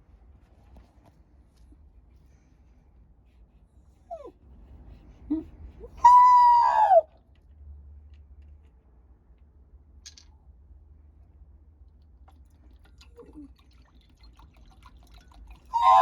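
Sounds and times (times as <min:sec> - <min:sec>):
dog whimpering: 0:04.1 - 0:04.4, 0:05.3 - 0:07.0, 0:15.8 - 0:16.0
dog howling cry: 0:06.0 - 0:07.1, 0:15.7 - 0:16.0.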